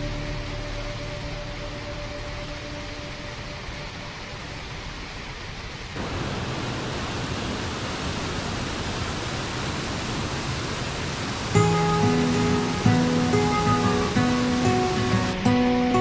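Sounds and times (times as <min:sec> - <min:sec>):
plucked string music: 0:00.0 - 0:04.1, 0:11.6 - 0:16.0
river water rushing: 0:00.0 - 0:16.0.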